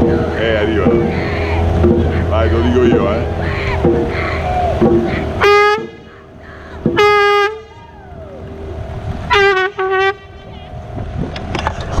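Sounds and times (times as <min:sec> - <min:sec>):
horn blasts: 0:00.8 - 0:06.1, 0:06.9 - 0:07.9, 0:09.2 - 0:10.7.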